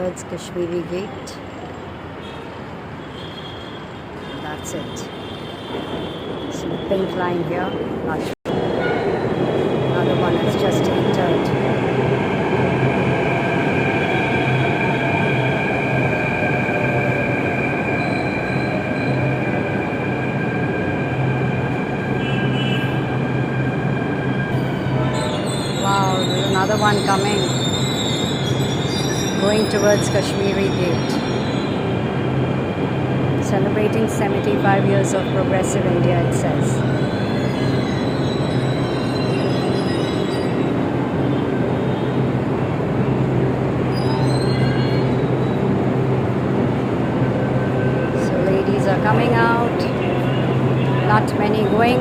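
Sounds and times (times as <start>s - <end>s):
high wheel squeal: 13.4s - 31.9s, 36.7s - 42.2s, 43.8s - 45.7s.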